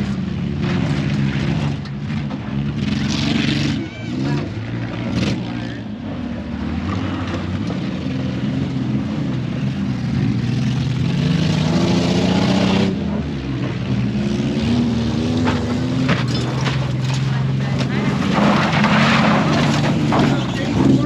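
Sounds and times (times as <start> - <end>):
truck engine revving hard: 0.0 - 21.0.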